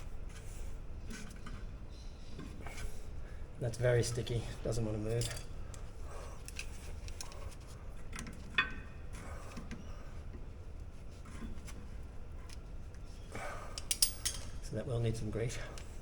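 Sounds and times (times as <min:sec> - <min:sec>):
small metal clicks and knocks: 0:05.2 - 0:05.8, 0:13.8 - 0:14.6.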